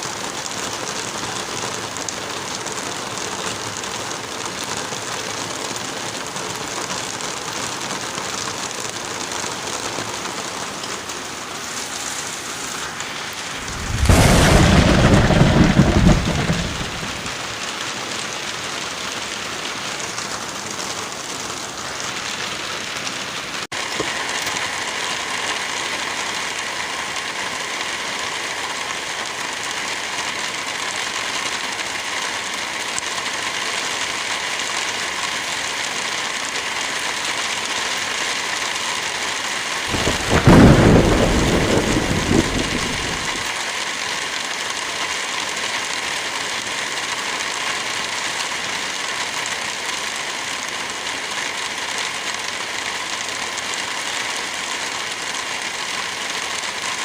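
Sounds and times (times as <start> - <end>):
steady rain: 0.0 - 57.0
thunder rumble: 13.4 - 17.6, 39.9 - 43.5.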